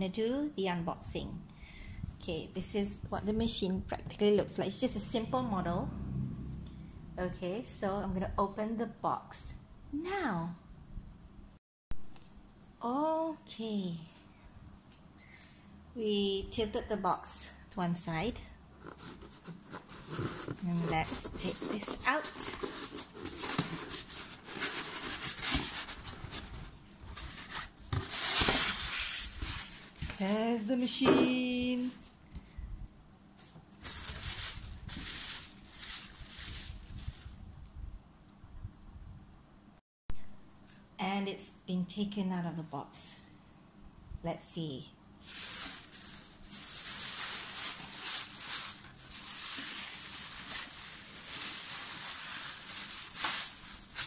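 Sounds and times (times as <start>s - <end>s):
packaging rustling and scraping: 18.8s - 30.3s, 33.4s - 37.4s, 45.2s - 54.0s.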